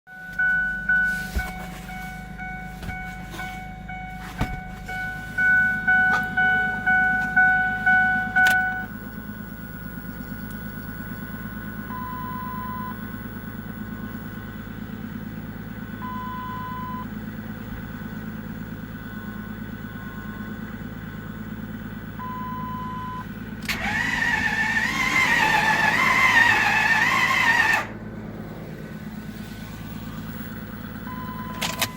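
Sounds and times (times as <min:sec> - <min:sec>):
short beeps: 0:00.1 - 0:08.9, 0:15.9 - 0:17.1, 0:22.2 - 0:23.2, 0:31.0 - 0:31.9
two-tone chime dinging: 0:00.2 - 0:08.9
diesel engine cranking: 0:00.2 - 0:31.9.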